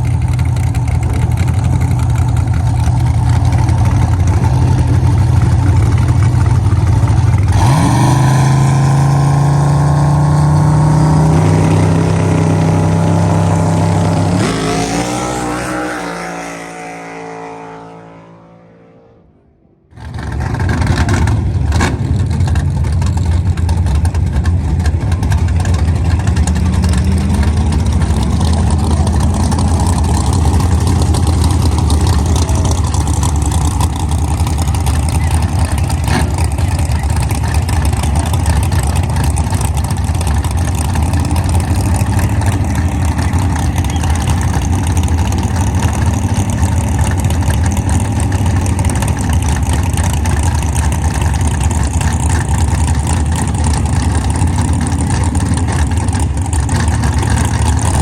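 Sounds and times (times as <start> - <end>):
car engine running: 0.0 - 18.7, 19.9 - 58.0.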